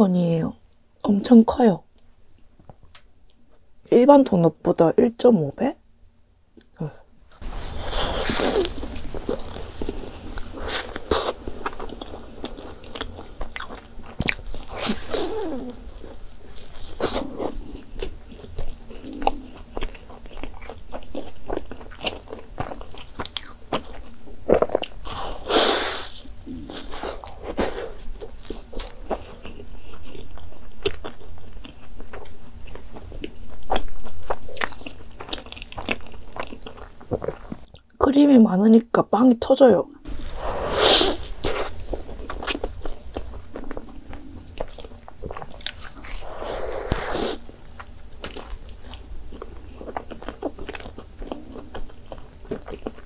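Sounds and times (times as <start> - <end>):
biting and chewing: 7.7 - 25.6, 26.4 - 37.9, 40.1 - 53.0.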